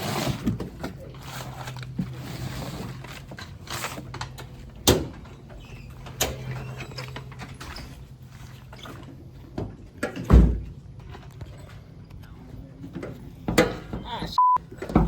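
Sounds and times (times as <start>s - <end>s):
metal clunks and knocks: 12.9s - 15.0s.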